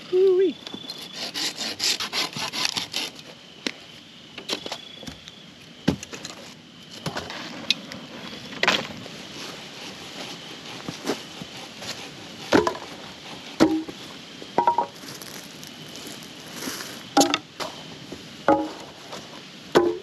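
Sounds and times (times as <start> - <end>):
axe chopping firewood: 12.5 - 12.9, 13.6 - 14.0, 17.2 - 17.4, 18.5 - 18.9, 19.7 - 20.0.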